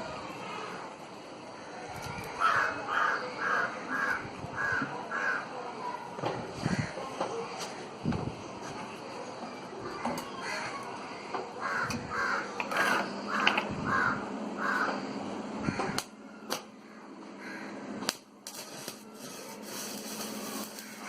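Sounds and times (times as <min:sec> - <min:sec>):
bird calling: 0:09.8 - 0:17.7.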